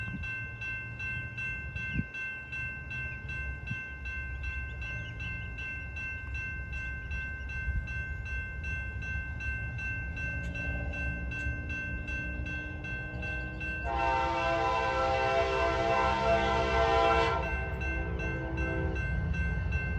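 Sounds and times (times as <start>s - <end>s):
freight train rumble: 0.0s - 19.9s
locomotive air horn: 13.8s - 19.0s.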